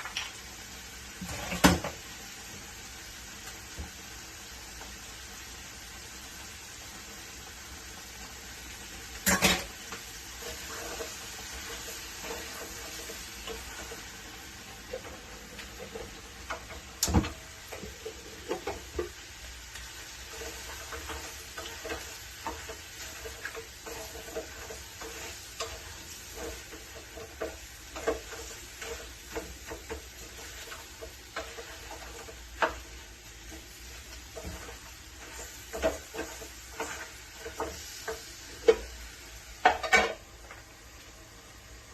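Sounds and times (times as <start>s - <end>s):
food sizzling in a pan: 0.0s - 41.9s
utensil scraping a pan: 1.2s - 2.0s, 9.2s - 16.9s, 19.8s - 40.2s.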